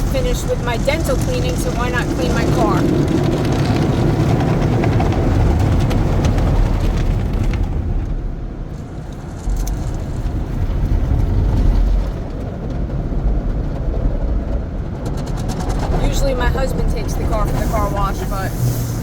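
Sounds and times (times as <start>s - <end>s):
low machinery rumble: 0.0s - 19.0s
water spray hissing on car body: 17.4s - 19.0s.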